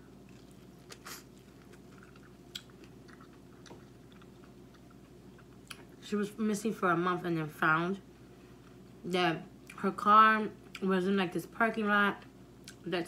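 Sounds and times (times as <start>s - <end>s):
chewing corn crunches: 0.0s - 6.0s.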